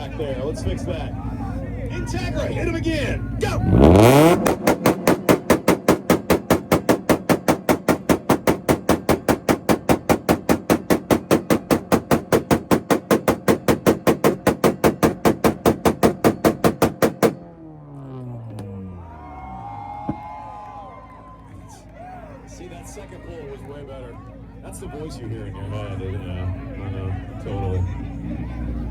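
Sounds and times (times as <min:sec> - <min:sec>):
engine launch limiter pops: 0:03.4 - 0:19.0, 0:19.9 - 0:20.7.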